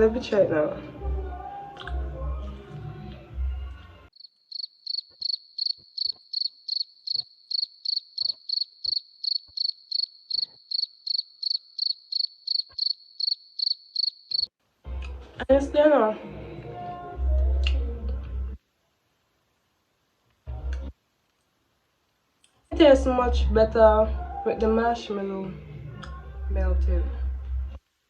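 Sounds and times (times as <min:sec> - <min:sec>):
cricket chirping: 0:04.2 - 0:14.5.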